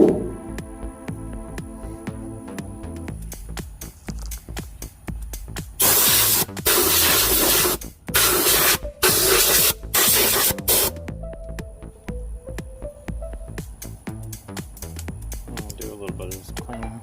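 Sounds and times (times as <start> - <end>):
electronic music: 0.0 - 3.9, 4.9 - 17.0
spraying bursts: 5.8 - 11.0.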